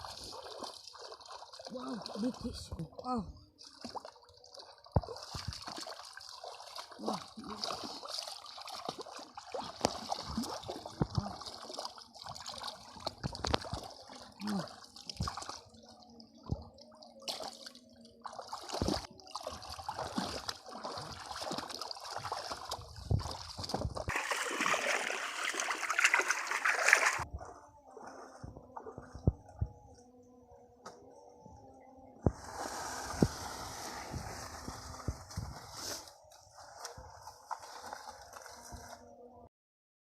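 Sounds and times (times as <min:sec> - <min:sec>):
shallow water splashing: 0:00.0 - 0:02.9, 0:03.6 - 0:15.7, 0:16.5 - 0:29.3, 0:32.3 - 0:39.0
churning water: 0:00.0 - 0:29.6.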